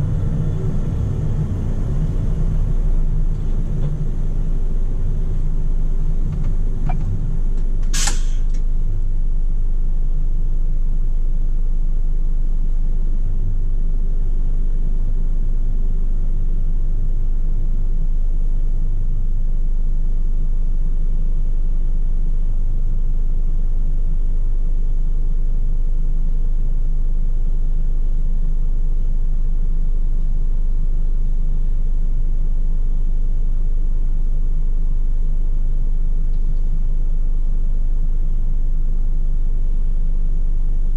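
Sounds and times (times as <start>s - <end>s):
diesel truck engine rumbling: 0.0s - 9.0s
short sharp noise: 7.9s - 8.6s.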